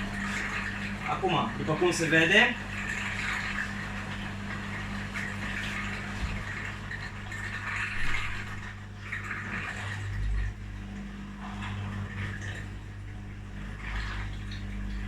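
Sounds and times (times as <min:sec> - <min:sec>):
drain pumps humming: 0:00.0 - 0:15.0
water gushing and gurgling: 0:00.0 - 0:15.0.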